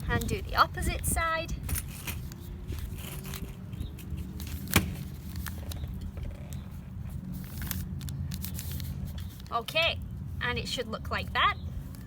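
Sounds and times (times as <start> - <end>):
low background rumble: 0.0 - 12.0
paper being folded: 6.6 - 9.6.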